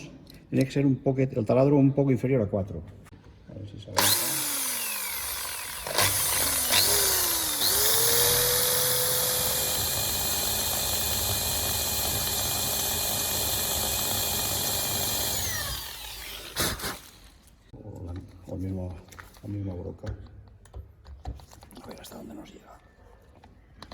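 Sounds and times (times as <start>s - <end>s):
electric drill boring: 4.0s - 17.4s
drill click: 4.0s - 17.6s.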